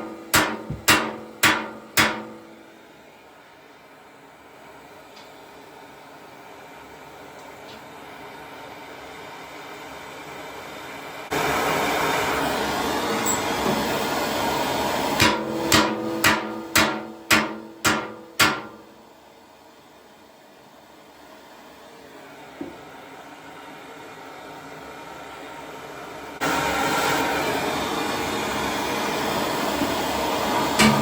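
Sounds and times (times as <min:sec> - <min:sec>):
hammer striking metal: 0:00.0 - 0:02.7, 0:15.2 - 0:19.0, 0:30.8 - 0:31.0.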